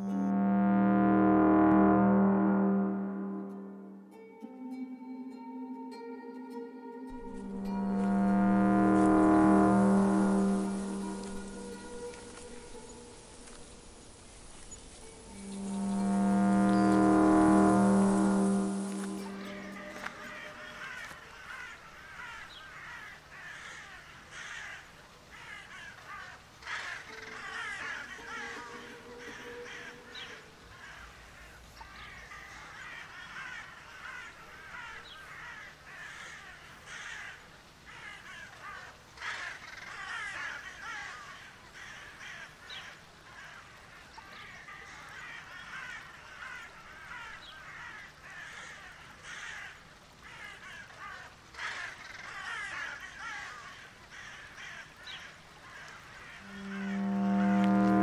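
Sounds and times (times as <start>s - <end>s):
crows cawing: 18.0s - 58.0s.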